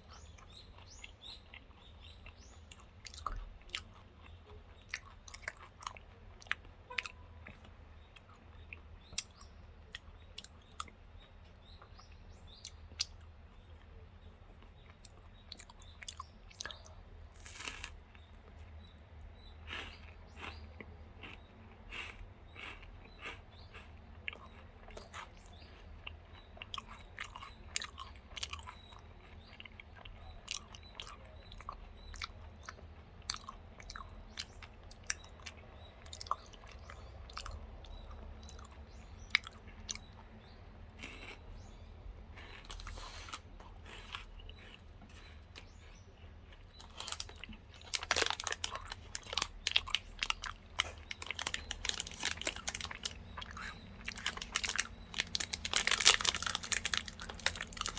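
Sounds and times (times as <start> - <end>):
chocolate bar crunching: 14.6 - 18.9, 19.7 - 40.1, 42.3 - 57.9.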